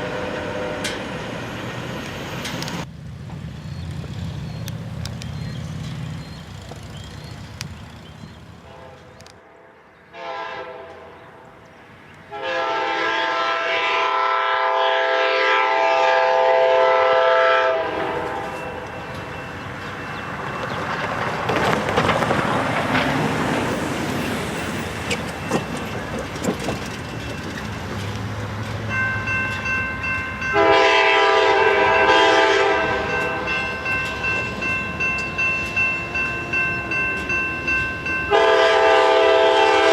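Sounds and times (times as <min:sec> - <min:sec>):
locomotive horn chord: 0:00.0 - 0:01.0, 0:08.6 - 0:11.4, 0:12.3 - 0:18.9, 0:30.4 - 0:34.7, 0:38.2 - 0:39.9
train wheels on rails: 0:00.0 - 0:09.5, 0:15.6 - 0:39.9
ringing bell: 0:28.9 - 0:30.6, 0:33.1 - 0:38.3.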